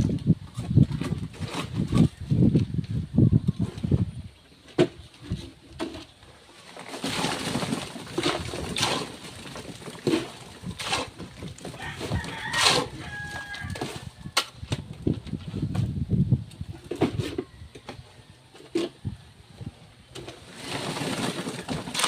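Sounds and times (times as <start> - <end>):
rooster crowing: 11.7 - 14.3.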